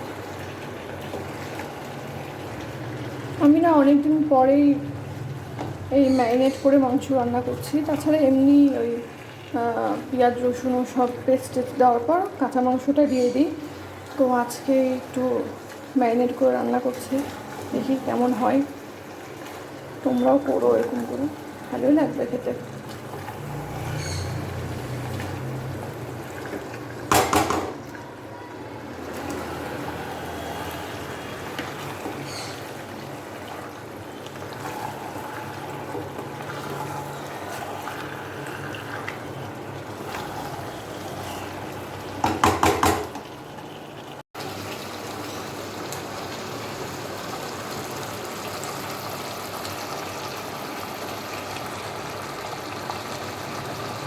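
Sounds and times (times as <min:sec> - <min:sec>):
food sizzling in oil: 0:00.0 - 0:54.0
utensil clattering against pot: 0:27.1 - 0:27.8, 0:42.2 - 0:43.2.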